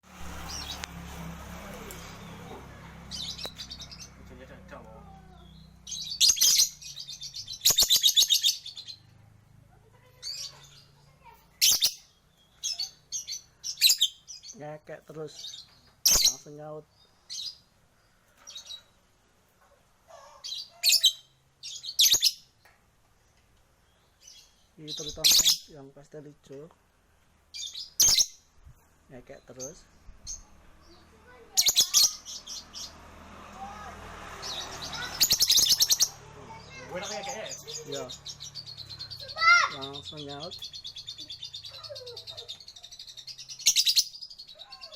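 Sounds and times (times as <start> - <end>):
lovebird chattering in shrill trills: 5.3 - 9.0, 10.1 - 14.6, 15.4 - 16.5, 20.4 - 22.5, 24.3 - 25.7, 27.6 - 28.4, 31.5 - 32.9, 34.4 - 44.9.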